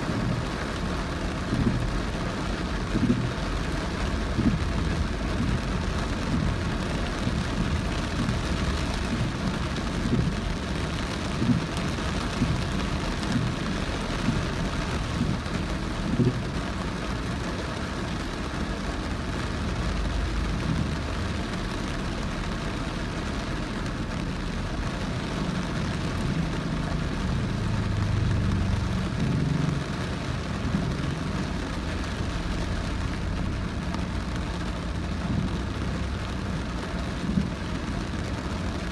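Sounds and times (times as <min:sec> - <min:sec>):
heavy rain hissing: 0:00.0 - 0:38.9
wet road tyre noise: 0:00.0 - 0:38.9
low thumps: 0:02.9 - 0:16.5.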